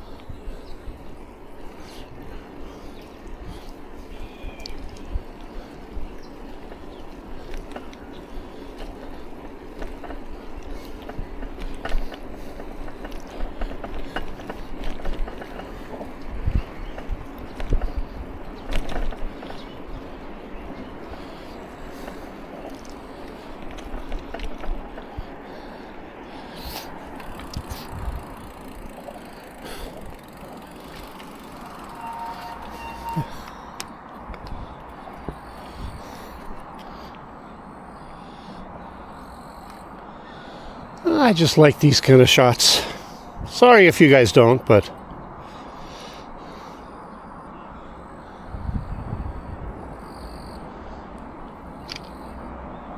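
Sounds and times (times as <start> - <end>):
bicycle rolling on wet road: 0.0 - 39.2
small clicks and rattles: 27.1 - 33.4
faint high tone: 31.4 - 33.5.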